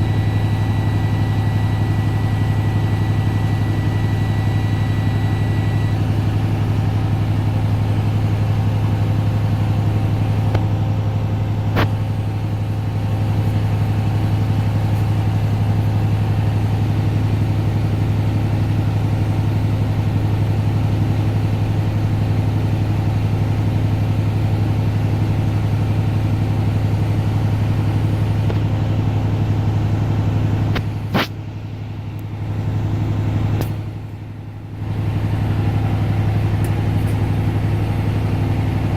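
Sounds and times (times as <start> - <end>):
diesel truck engine idling: 0.0 - 38.9
sharp click: 30.7 - 31.4, 33.6 - 33.8.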